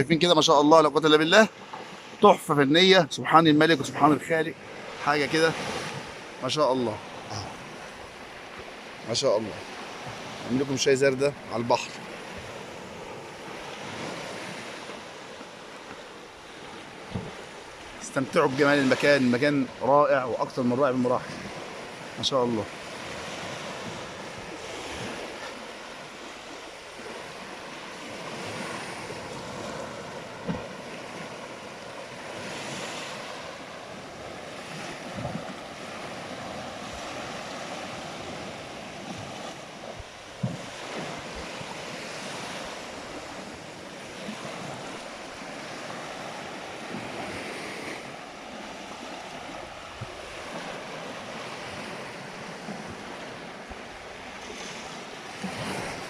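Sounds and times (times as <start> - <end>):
sea surf washing in: 0.0 - 56.0
wind on microphone: 16.9 - 17.5, 34.2 - 46.1, 49.3 - 50.9.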